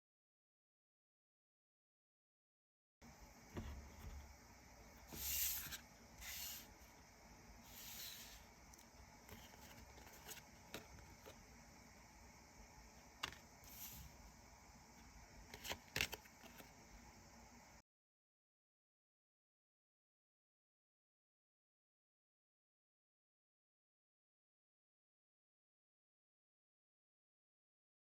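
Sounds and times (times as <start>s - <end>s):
cards sliding swishes: 5.1s - 6.7s, 7.7s - 8.4s.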